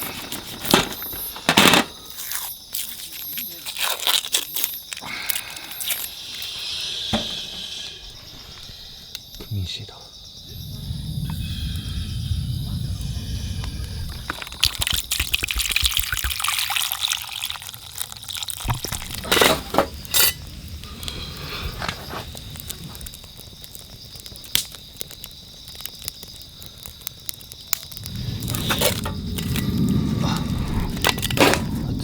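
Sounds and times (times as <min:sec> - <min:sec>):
low rumbling noise: 0:10.4 - 0:15.3, 0:27.9 - 0:32.0
liquid being poured: 0:13.1 - 0:21.2.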